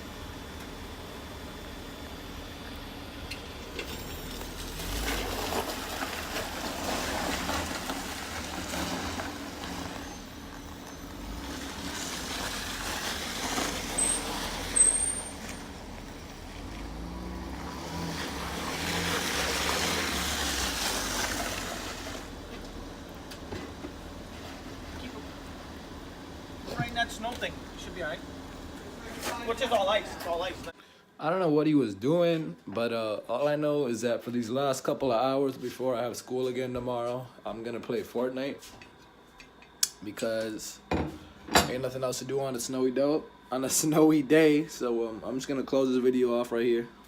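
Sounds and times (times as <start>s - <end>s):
car engine running: 0.0s - 30.7s
tyre and road noise: 2.2s - 30.8s.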